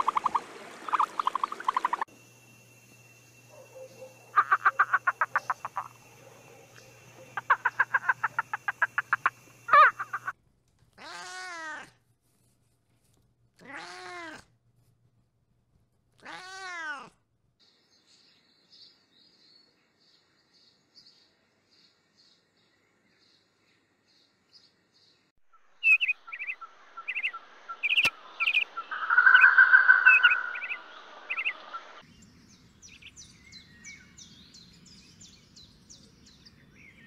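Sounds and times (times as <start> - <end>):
sharp animal call: 3.9 - 6.0, 7.2 - 10.3
rattling rapid croaks: 4.3 - 6.1, 7.2 - 10.3
cat meowing: 13.6 - 14.4, 16.2 - 17.1
faint high chirps: 25.8 - 32.1.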